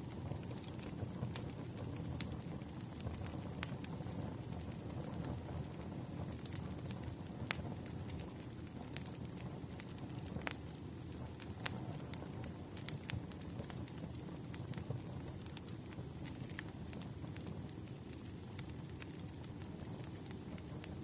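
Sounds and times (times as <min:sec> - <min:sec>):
firewood crackling and popping: 0:00.0 - 0:21.0.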